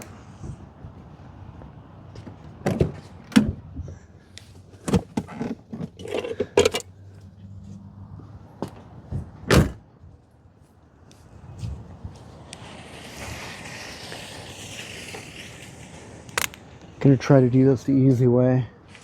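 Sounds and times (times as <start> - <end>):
hands handling engine parts: 4.4 - 7.3.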